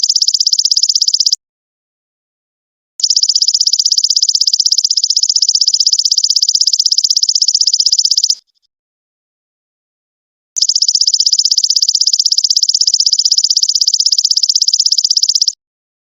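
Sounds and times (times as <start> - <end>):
insect high-pitched trill: 3.0 - 8.5, 10.6 - 15.6.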